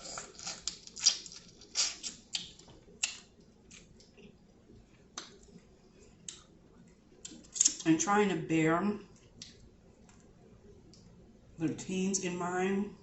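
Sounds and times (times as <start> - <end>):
person chewing food: 0.0 - 6.5.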